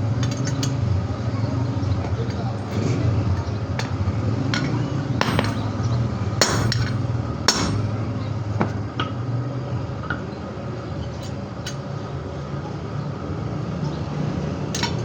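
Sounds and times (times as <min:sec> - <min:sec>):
hammer striking metal: 0:05.2 - 0:08.0.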